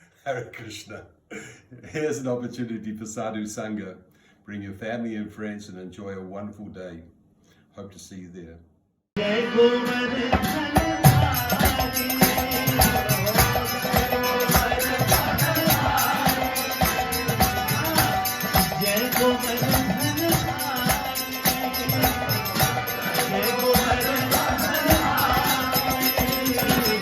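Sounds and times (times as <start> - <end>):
jingling percussion: 10.4 - 27.0
wavering melody: 11.1 - 27.0.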